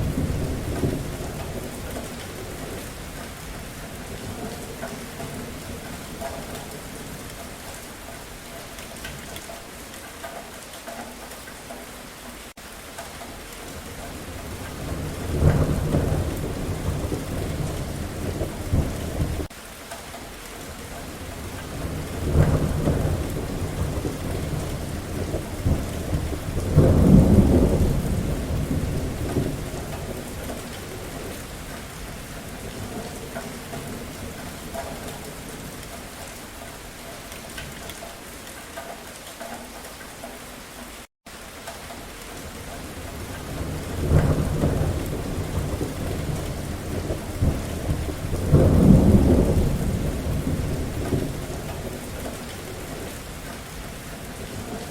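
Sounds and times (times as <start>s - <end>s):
thunder rumbling: 0.0s - 7.8s, 13.8s - 19.5s, 21.1s - 36.5s, 42.4s - 54.9s
steady rain falling: 0.0s - 54.9s.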